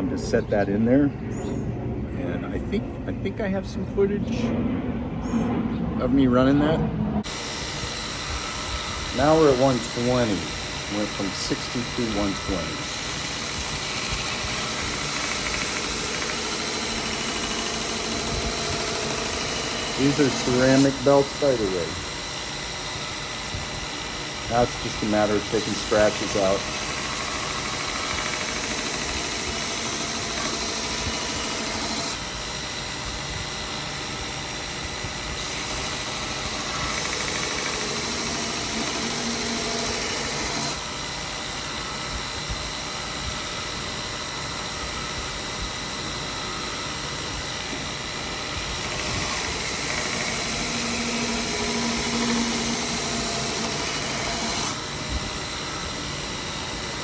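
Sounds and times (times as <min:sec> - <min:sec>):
belt grinder grinding metal: 0:07.3 - 0:32.8, 0:34.7 - 0:41.6, 0:47.6 - 0:57.0.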